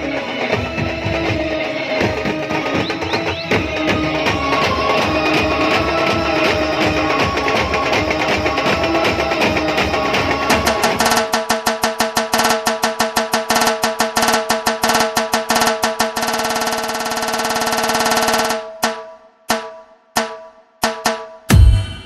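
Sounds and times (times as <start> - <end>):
drum roll: 0.3 - 16.6, 20.8 - 22.0
heavy low drum hit: 21.5 - 22.0.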